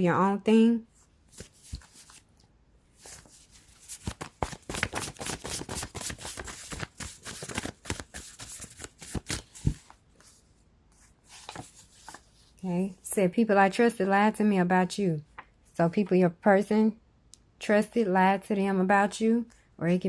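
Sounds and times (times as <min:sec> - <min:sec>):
cards being shuffled by hand: 0:01.3 - 0:02.3, 0:03.0 - 0:10.4, 0:11.2 - 0:12.3.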